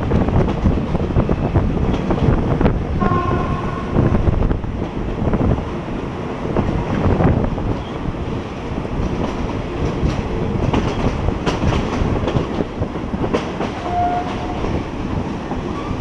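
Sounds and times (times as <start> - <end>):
train rumbling on rails: 0.0 - 16.0
wheels clacking over rail joints: 6.6 - 16.0.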